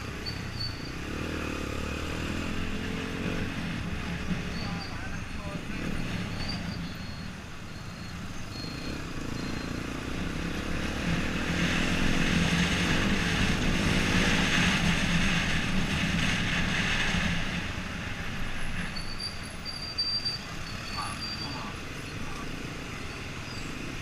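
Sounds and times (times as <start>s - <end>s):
motorcycle engine revving: 0.0s - 4.9s, 8.5s - 18.9s.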